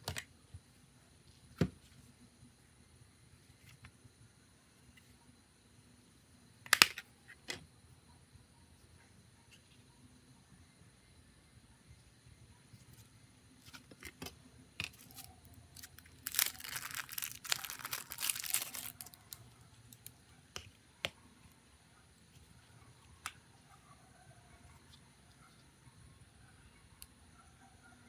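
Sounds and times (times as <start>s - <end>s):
crinkling tearing noise: 14.9s - 20.1s.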